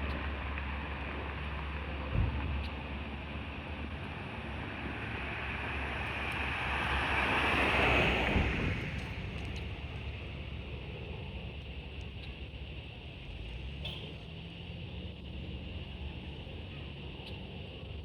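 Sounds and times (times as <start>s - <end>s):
wind rumble on microphone: 0.0s - 13.1s
aircraft passing overhead: 2.8s - 11.6s.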